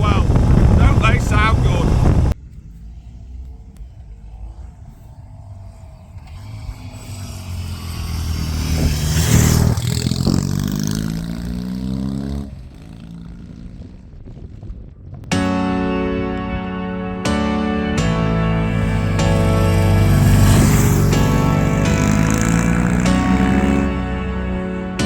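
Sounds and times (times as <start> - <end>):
motorcycle riding past: 0.2 - 25.0
music: 15.3 - 25.0.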